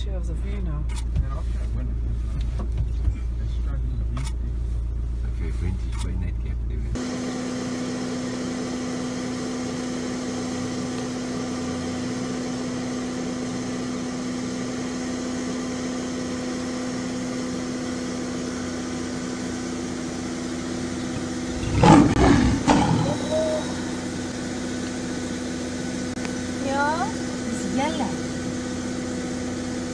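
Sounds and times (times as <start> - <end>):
vehicle engine idling: 0.0 - 8.4, 12.9 - 29.9.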